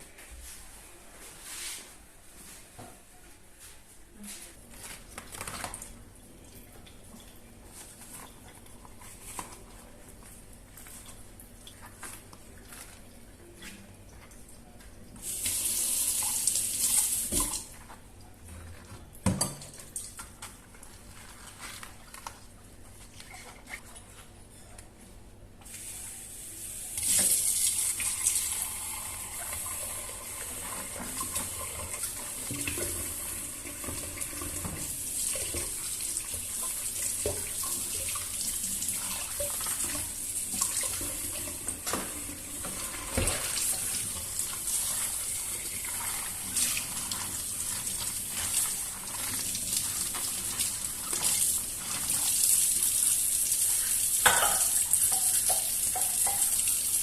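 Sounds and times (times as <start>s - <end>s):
tap water running into sink: 27.0s - 57.0s.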